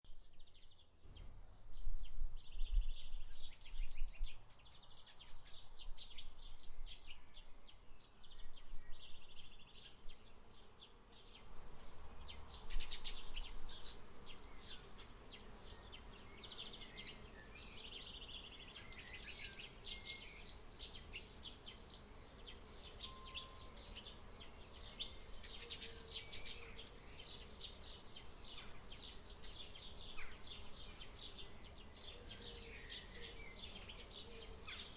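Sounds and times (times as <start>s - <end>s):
wind rumble on microphone: 0.1s - 10.3s
small birds chirping: 0.1s - 34.9s.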